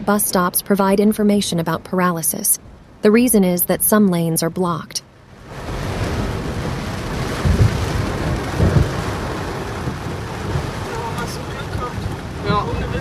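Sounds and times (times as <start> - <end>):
heavy rain on a car: 5.3 - 13.0.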